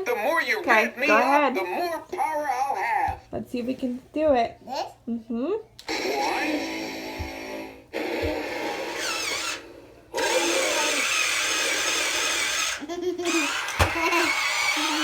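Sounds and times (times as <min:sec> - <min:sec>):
toy truck electric motor whirring: 0:08.4 - 0:15.0.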